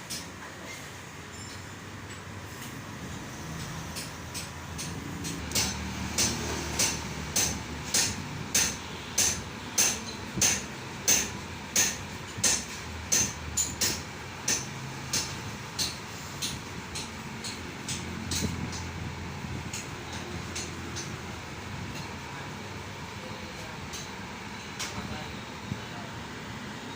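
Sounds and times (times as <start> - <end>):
hammer striking metal: 3.5 - 19.0.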